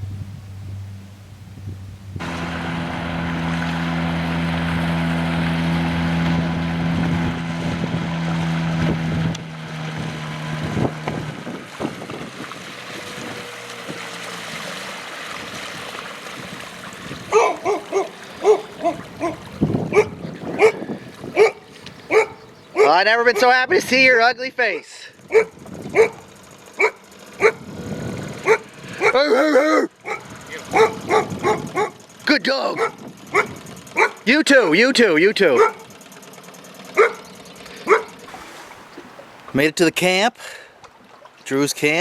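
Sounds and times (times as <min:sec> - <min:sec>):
engine running: 0:00.0 - 0:39.8
dog barking: 0:17.3 - 0:23.5, 0:25.3 - 0:26.2, 0:26.8 - 0:27.6, 0:28.4 - 0:29.3, 0:30.0 - 0:32.0, 0:32.8 - 0:34.2, 0:35.6 - 0:35.8, 0:37.0 - 0:38.1.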